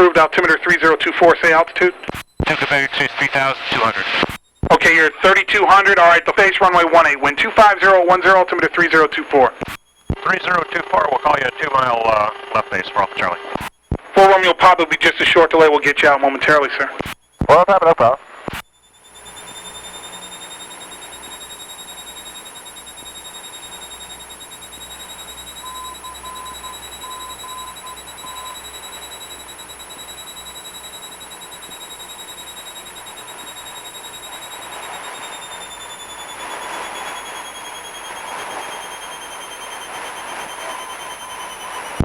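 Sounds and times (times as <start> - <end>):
high steady whine: 0.0 - 15.0, 17.7 - 42.0
faint beeps: 4.5 - 13.3, 18.8 - 42.0
aircraft cabin engine drone: 19.1 - 42.0.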